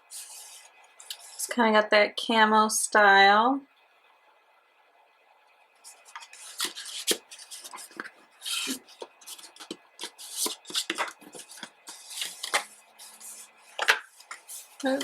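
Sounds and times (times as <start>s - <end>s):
clicks and scrapes of packaging: 5.9s - 15.0s.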